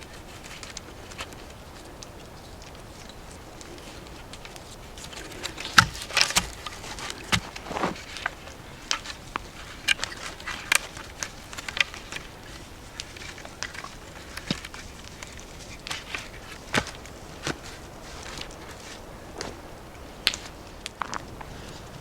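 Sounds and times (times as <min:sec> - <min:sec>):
wooden poles knocking and clicking: 0:04.3 - 0:17.6.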